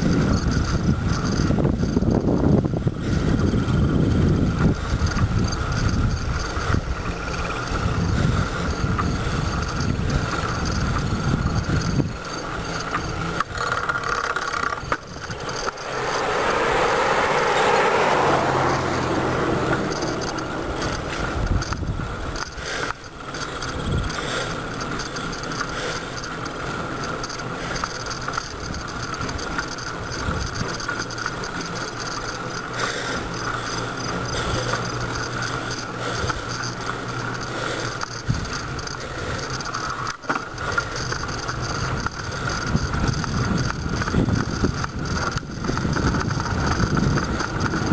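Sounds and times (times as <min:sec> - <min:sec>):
rushing noise: 0:00.0 - 0:26.3
bicycle drivetrain ticking: 0:00.0 - 0:47.9
bicycle tyres rolling on road: 0:00.0 - 0:47.9.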